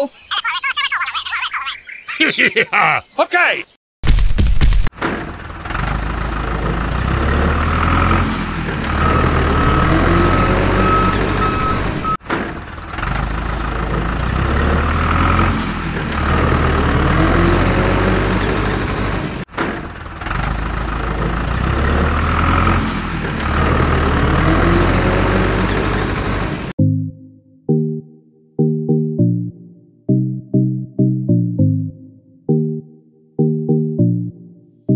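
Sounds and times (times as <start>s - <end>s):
heavy vehicle engine revving: 5.2s - 26.8s
reversing beeper: 8.9s - 12.2s.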